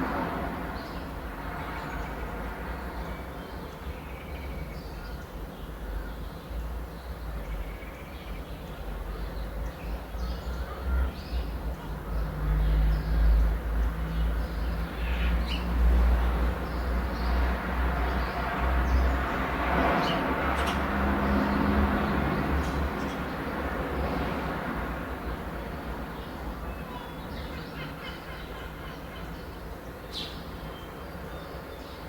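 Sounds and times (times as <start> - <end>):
birds calling: 26.2 - 32.0.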